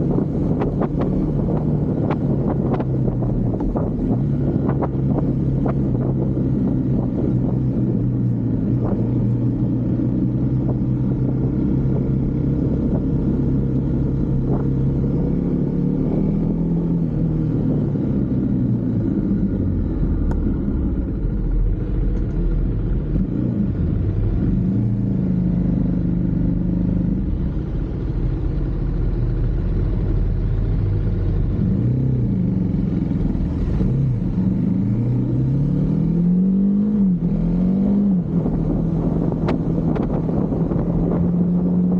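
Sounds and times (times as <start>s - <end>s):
motorcycle engine revving: 29.8s - 41.9s.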